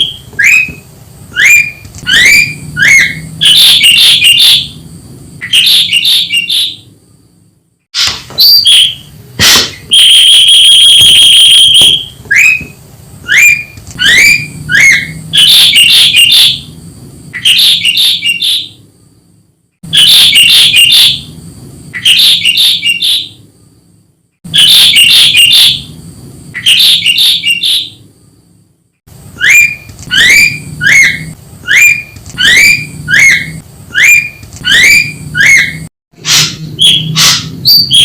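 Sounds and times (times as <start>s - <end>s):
harsh chattering bird calls: 1.4s - 4.8s, 5.4s - 7.1s, 13.3s - 16.6s, 17.3s - 18.9s, 21.9s - 23.5s, 26.6s - 28.0s, 29.4s - 38.0s.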